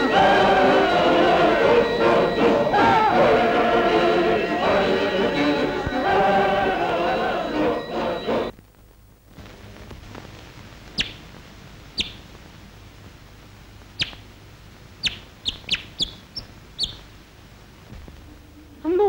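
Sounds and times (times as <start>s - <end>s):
faint steady hum: 0.0s - 19.0s
small bird chirping: 10.9s - 11.3s, 11.9s - 12.3s, 13.9s - 14.3s, 15.0s - 17.1s.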